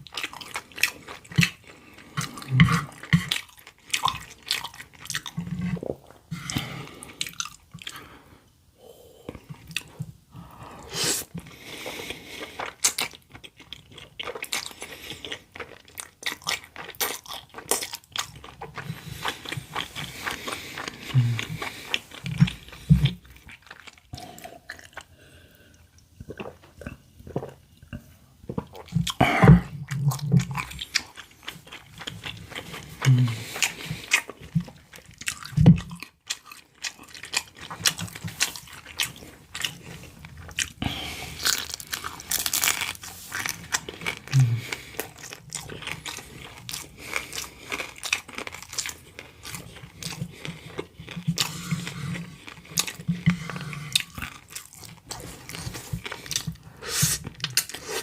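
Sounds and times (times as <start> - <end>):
person biting and chewing food: 12.0 - 25.2, 28.5 - 58.0.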